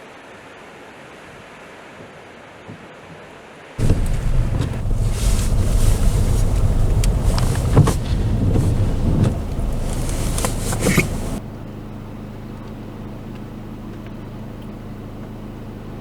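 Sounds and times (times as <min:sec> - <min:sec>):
strong wind buffeting microphone: 0:03.8 - 0:11.4.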